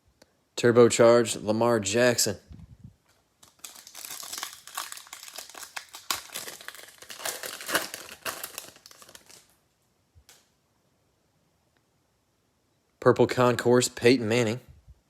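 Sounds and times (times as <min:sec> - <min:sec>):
foil wrapper crinkling: 0:03.4 - 0:09.6.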